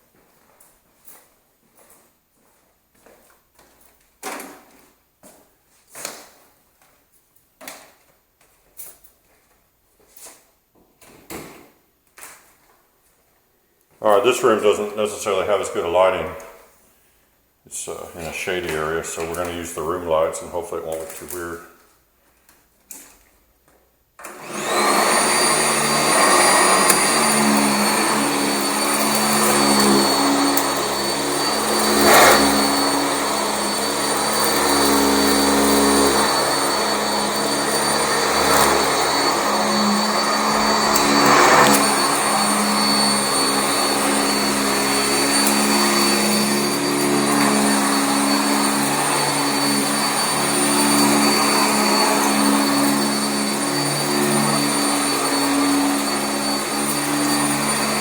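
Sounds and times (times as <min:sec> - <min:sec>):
vacuum cleaner motor whine: 0:14.0 - 0:16.6, 0:24.2 - 0:58.0.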